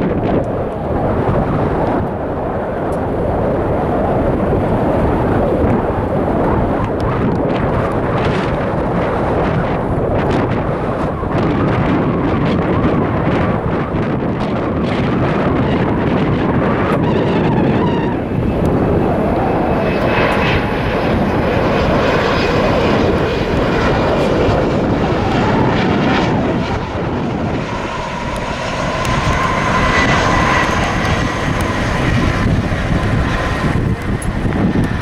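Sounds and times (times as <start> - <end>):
jet engines roaring: 0.0 - 35.0
wind buffeting microphone: 0.0 - 35.0
high engine whine: 15.6 - 35.0.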